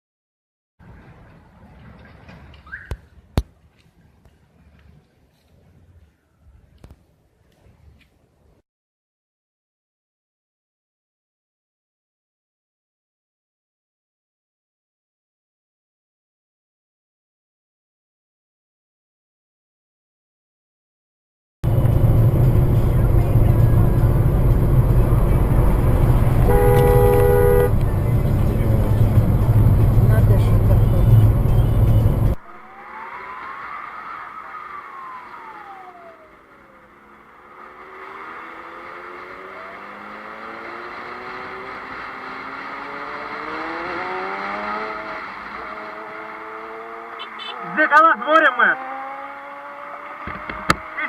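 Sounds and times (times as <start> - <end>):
vehicle engine and road rumble: 0.8 - 8.6, 21.6 - 51.0
road noise hiss: 21.7 - 32.4.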